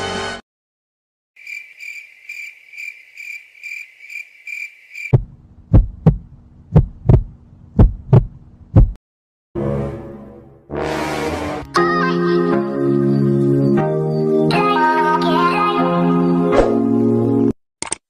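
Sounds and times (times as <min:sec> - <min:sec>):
heartbeat thumps: 0:05.1 - 0:09.0.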